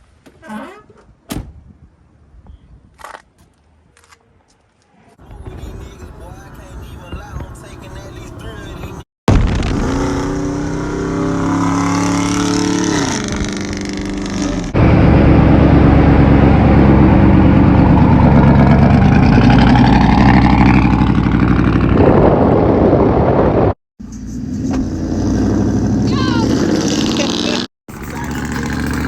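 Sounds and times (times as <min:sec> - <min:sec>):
loud truck exhaust revving: 0:09.4 - 0:29.0.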